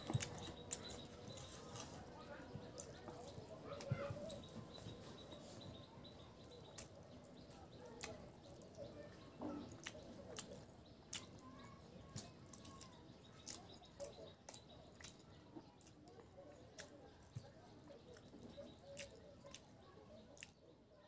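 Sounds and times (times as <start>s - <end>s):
person chewing food: 0.0s - 5.6s, 9.6s - 11.4s, 12.0s - 17.4s, 18.1s - 19.7s.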